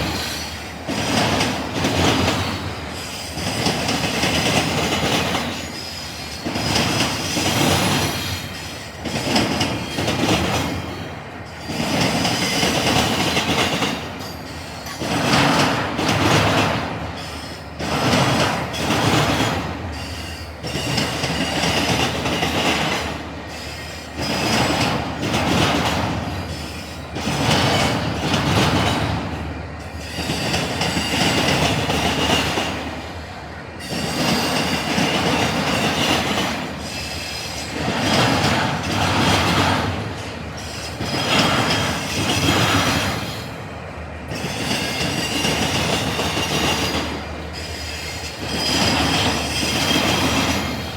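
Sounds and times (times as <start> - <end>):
train wheels banging over crossing: 0.0 - 33.2, 33.8 - 43.6, 44.2 - 50.9
high wheel squeal: 5.6 - 6.7, 36.8 - 37.8, 44.3 - 50.9.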